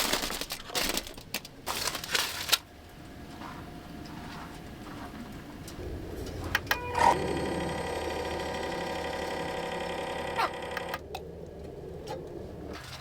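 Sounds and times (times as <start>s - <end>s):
small motor whirring: 6.8s - 11.0s.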